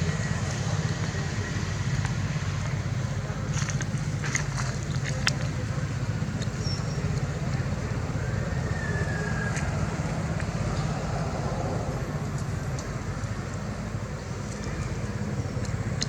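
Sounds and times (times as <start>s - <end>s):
motor engine rumbling: 0.0s - 16.0s
faint clicks: 12.3s - 13.7s.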